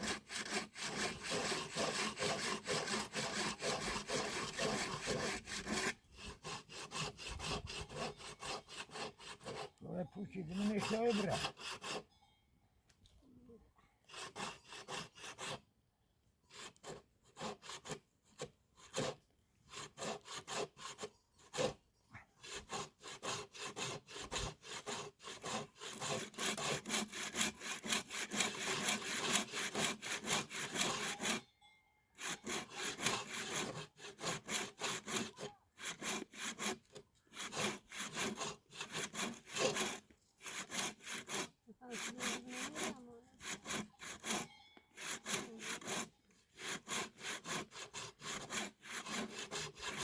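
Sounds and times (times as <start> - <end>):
hand saw cutting wood: 0.0 - 12.1, 14.0 - 15.7, 16.5 - 21.8, 22.4 - 31.4, 32.2 - 50.0.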